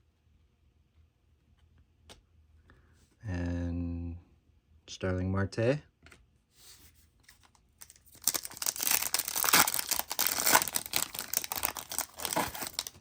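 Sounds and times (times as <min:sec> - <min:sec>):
wrapper tearing and crinkling: 0:07.8 - 0:13.0.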